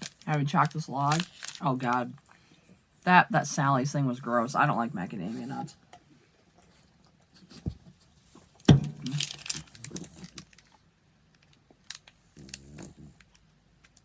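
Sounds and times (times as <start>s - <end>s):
plastic wrapper tearing: 0.0s - 1.9s, 8.9s - 10.8s, 11.4s - 14.0s
plastic wrapper crinkling: 0.0s - 2.2s, 8.6s - 14.0s.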